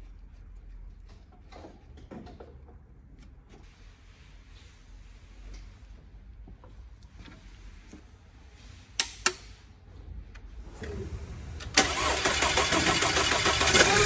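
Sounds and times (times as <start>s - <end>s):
car engine starting and running: 10.6s - 14.0s.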